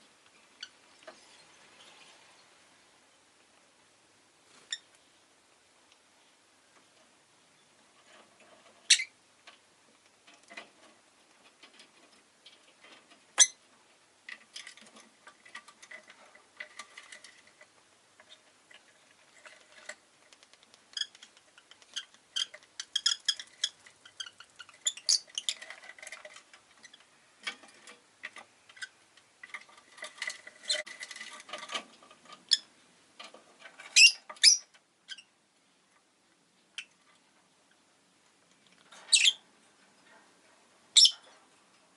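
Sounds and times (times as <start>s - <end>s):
rapid clicks and taps: 20.2s - 22.0s
lovebird chattering: 34.0s - 35.3s, 41.0s - 41.2s.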